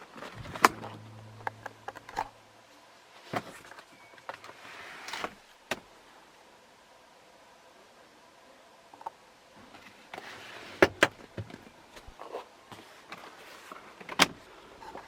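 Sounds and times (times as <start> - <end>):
seat motor humming: 0.4 - 2.5.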